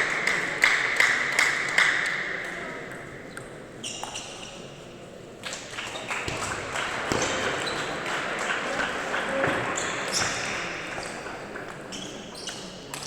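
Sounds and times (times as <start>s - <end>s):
people clapping: 0.0s - 2.6s, 5.4s - 11.8s.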